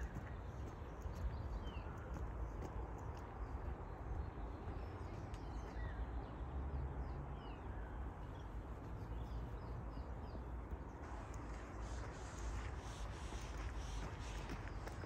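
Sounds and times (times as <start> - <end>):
birds chirping: 0.0 - 15.0
steady low rumble: 8.4 - 15.0.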